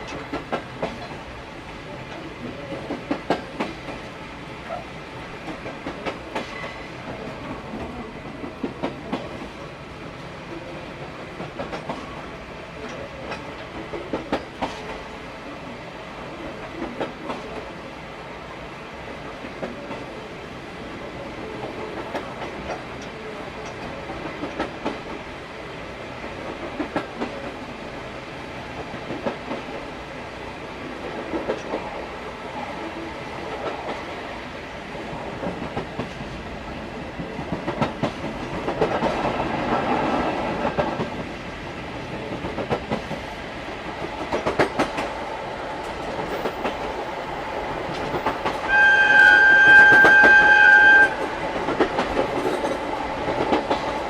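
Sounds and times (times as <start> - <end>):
train wheels clacking over rail joints: 0.0 - 1.2, 2.1 - 4.1, 5.4 - 9.6, 11.4 - 12.2, 12.8 - 15.1, 21.6 - 25.2, 26.4 - 27.6, 37.2 - 41.3, 42.0 - 47.1, 47.7 - 48.8, 49.4 - 54.0
locomotive whistle blast: 48.7 - 51.3.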